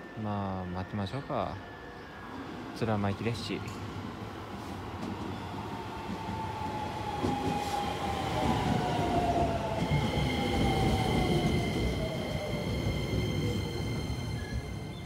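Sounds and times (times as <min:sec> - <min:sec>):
train wheels rumbling on rail: 0:03.8 - 0:15.0.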